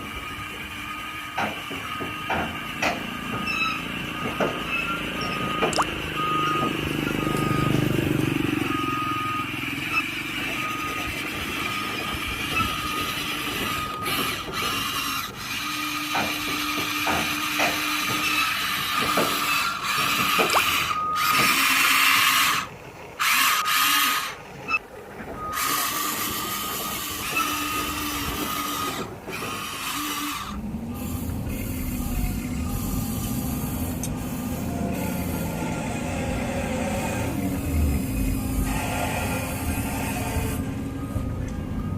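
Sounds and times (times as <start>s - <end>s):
short reversing beeps: 3.5s - 11.1s, 11.8s - 14.2s
small electric motors whirring: 5.2s - 24.8s, 25.4s - 41.9s.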